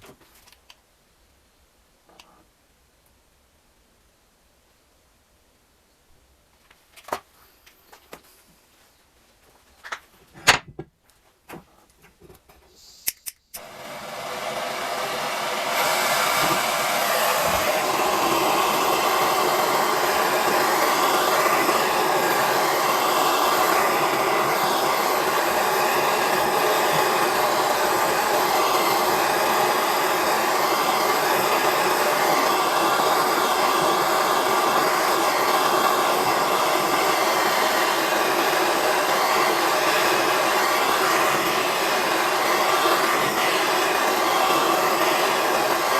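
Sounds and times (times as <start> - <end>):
blowing machine noise: 13.6 - 45.9.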